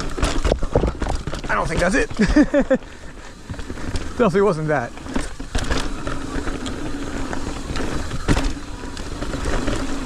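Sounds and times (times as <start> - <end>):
bike tyre noise and rattle: 0.0 - 10.0.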